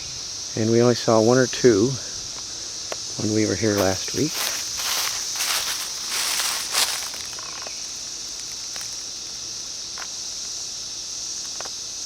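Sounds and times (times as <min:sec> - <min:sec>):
cicadas droning: 0:00.0 - 0:12.0
loud rustling: 0:03.8 - 0:09.2.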